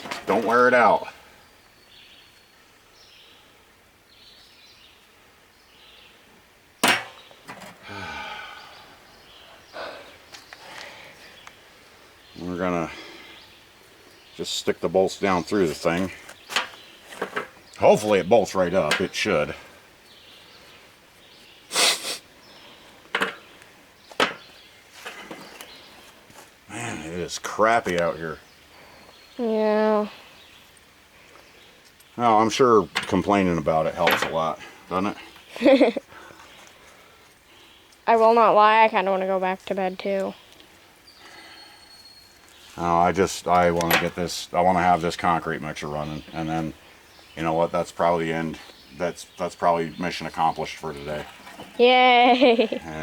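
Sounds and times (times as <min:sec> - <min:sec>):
small metal knock: 0:06.8 - 0:07.7
sharp metallic clank: 0:06.8 - 0:07.8.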